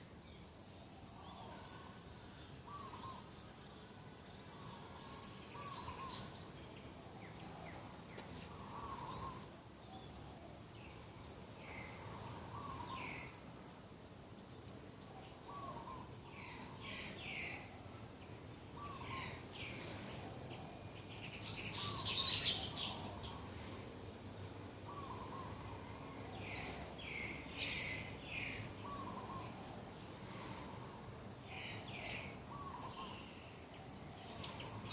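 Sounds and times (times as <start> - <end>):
small birds chirping: 0.2 - 34.9
doves cooing: 7.2 - 10.6, 11.6 - 13.3, 15.1 - 16.5, 24.8 - 34.9.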